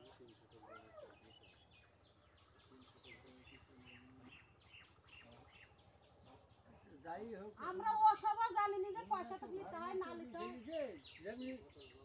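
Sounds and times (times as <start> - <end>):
faint voices: 0.0 - 7.0
birds chirping: 0.0 - 12.0.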